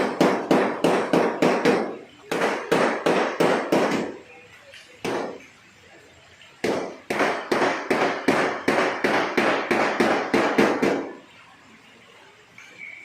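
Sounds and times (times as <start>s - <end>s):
hammer striking steel panel: 0.0s - 4.2s, 6.6s - 11.2s.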